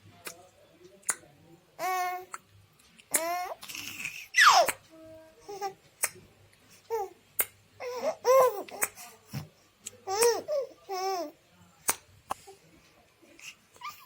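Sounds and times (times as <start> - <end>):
baby babbling and squealing: 4.4 - 4.8.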